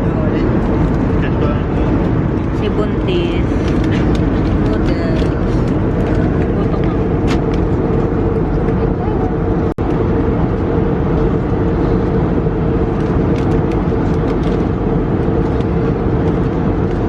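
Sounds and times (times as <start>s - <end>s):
airliner cabin engine noise: 0.0s - 17.0s
constant hum: 0.0s - 17.0s.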